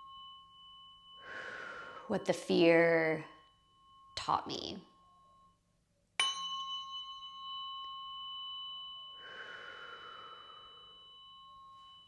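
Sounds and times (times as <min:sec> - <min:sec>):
tuning fork ringing: 0:00.0 - 0:12.0
soft breathy sound: 0:01.2 - 0:02.2, 0:09.1 - 0:11.4.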